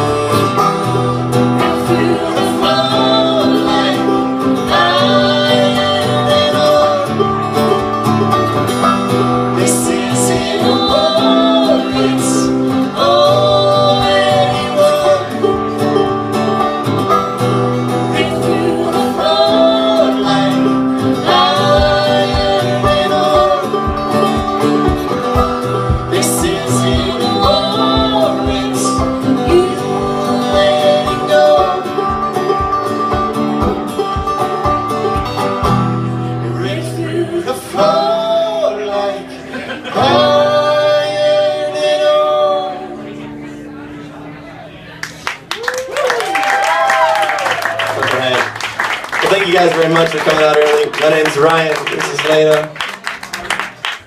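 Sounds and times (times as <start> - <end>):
plucked strings melody: 0.0 - 36.6
picked guitar: 0.0 - 54.0.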